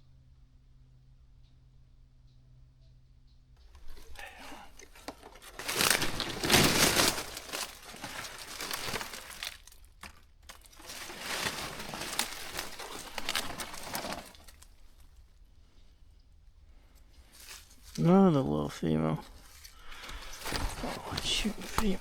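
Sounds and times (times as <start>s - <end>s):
dry material crinkling: 3.6s - 15.4s, 16.8s - 22.0s.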